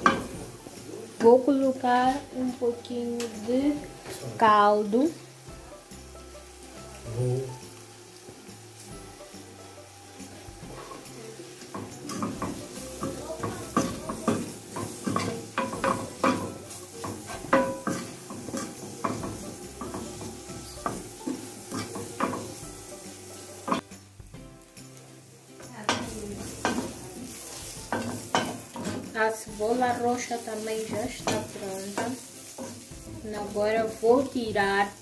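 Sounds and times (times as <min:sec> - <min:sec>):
onions sizzling in a pan: 0:00.0 - 0:35.0
wooden spoon scraping a pan: 0:10.3 - 0:23.8.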